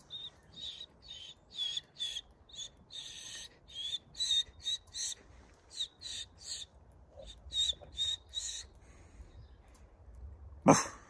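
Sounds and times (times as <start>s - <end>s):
bird calling harsh high notes: 0.0s - 8.7s.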